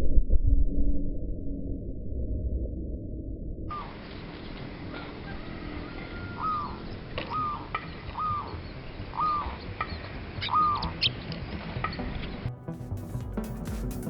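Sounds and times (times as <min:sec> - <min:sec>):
bird calling: 0:03.7 - 0:12.1.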